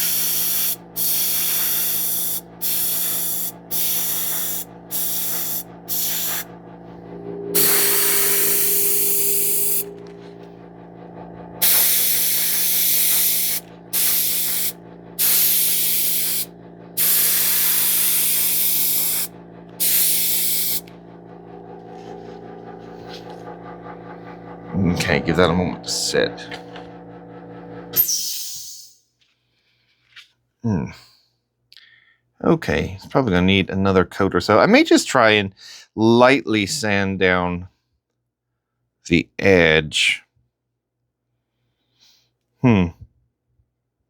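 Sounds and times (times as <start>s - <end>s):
airbrush spraying hiss: 0.0s - 6.6s, 7.5s - 10.3s, 11.6s - 20.9s
steady low hum: 0.0s - 28.1s.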